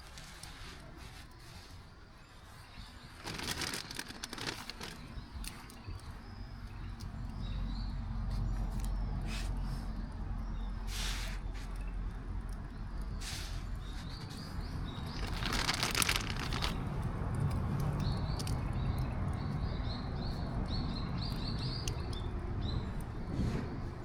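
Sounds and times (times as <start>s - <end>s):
small bird chirping: 12.7s - 16.8s.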